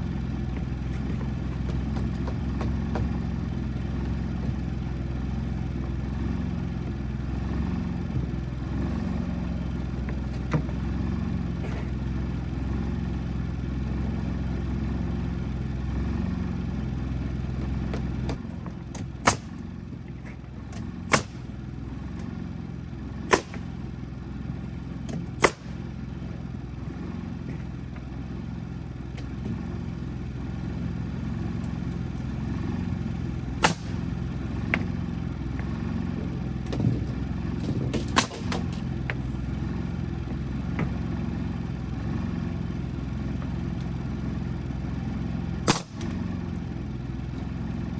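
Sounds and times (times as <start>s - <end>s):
engine humming: 0.0s - 47.9s.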